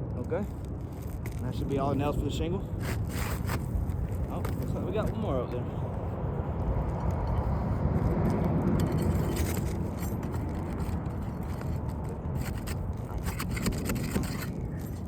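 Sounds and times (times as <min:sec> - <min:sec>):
roof shingles scraping and crackling: 0:02.8 - 0:05.2, 0:09.0 - 0:15.0.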